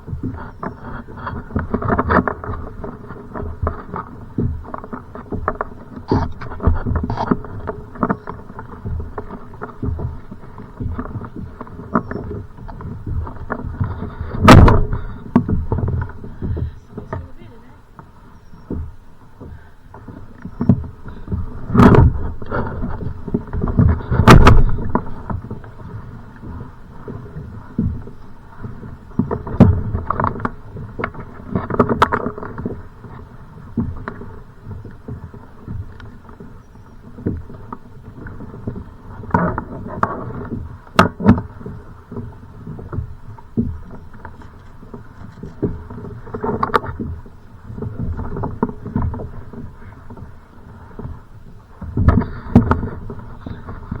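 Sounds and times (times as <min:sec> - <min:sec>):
choppy waves: 0:00.0 - 0:54.0
wind: 0:00.0 - 0:54.0
knocks against kayak: 0:10.8 - 0:17.4, 0:20.6 - 0:26.5, 0:51.8 - 0:53.8.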